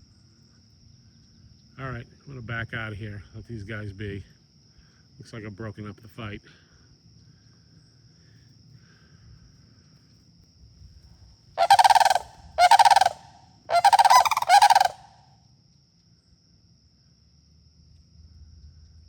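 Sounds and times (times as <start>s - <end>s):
cranes rattling calls: 11.6s - 15.1s.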